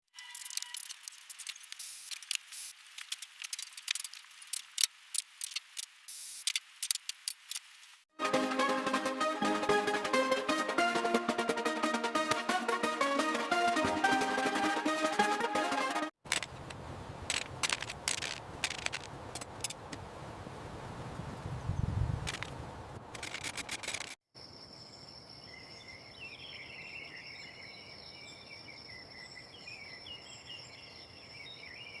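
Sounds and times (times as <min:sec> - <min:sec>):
music with a beat: 0:08.2 - 0:16.1
objects clicking and rattling: 0:16.3 - 0:19.9, 0:22.2 - 0:22.5, 0:23.1 - 0:24.2
small birds chirping: 0:24.6 - 0:32.0.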